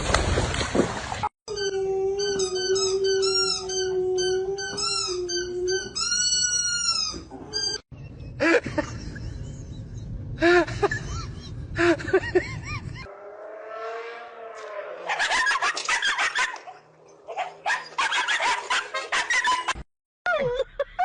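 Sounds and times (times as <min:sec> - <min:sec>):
dog whining: 0:01.5 - 0:07.8
low rumble: 0:08.0 - 0:13.1
dog yelping: 0:15.0 - 0:20.7.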